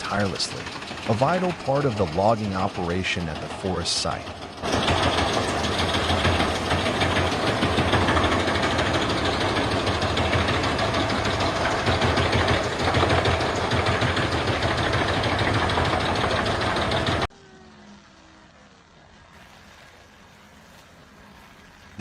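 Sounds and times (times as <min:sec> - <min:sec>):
wood chipper shredding logs: 0:00.0 - 0:22.0.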